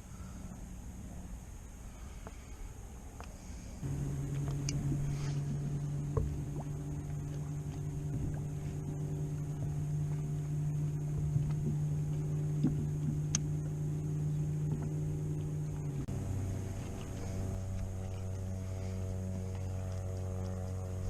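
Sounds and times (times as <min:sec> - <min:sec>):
watercraft engine idling: 0:00.0 - 0:21.0.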